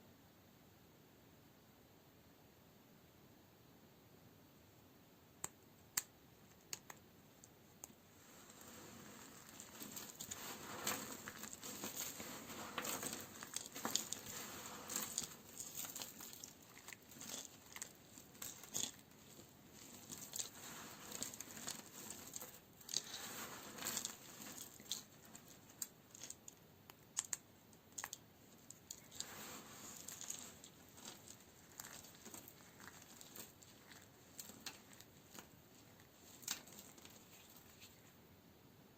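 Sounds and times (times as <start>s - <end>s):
rustling scrapes: 8.1s - 26.4s, 28.0s - 38.2s.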